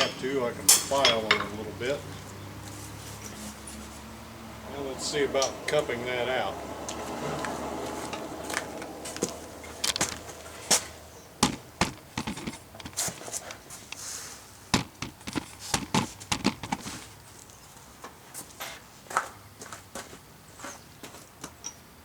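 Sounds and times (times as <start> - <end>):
hammer striking steel disc: 0.0 - 1.6.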